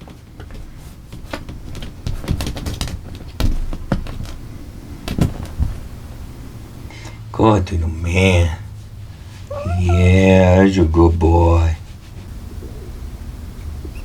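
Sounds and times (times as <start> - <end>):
kittens pawing and scratching: 0.0 - 6.7, 8.8 - 12.4.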